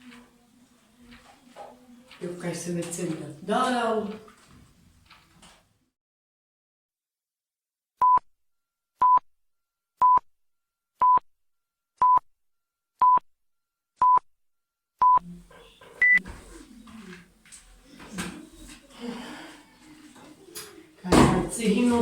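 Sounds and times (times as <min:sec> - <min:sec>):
short electronic beeps: 0:16.0 - 0:16.2.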